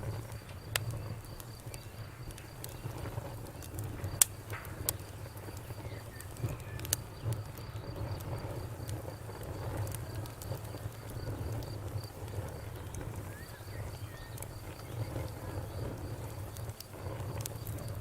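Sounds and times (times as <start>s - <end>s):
campfire crackling and popping: 0.0s - 18.0s
cricket chirping: 0.0s - 18.0s.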